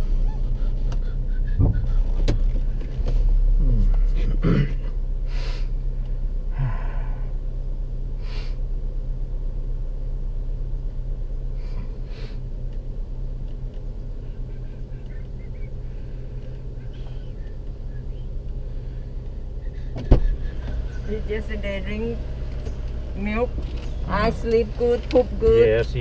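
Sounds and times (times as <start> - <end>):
car engine and tyres hum: 0.0 - 26.0
breathy sounds: 6.5 - 7.4.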